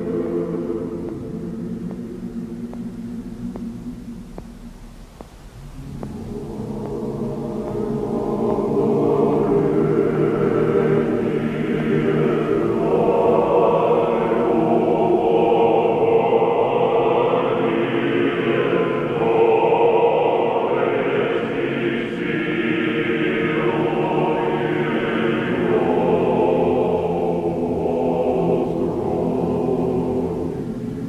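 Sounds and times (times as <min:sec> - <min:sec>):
choir singing slow chant: 0:00.0 - 0:31.0.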